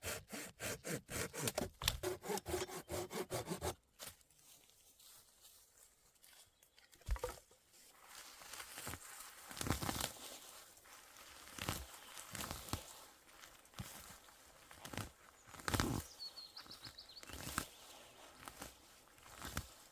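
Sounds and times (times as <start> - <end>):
branches rustling and crackling: 7.8 - 19.9.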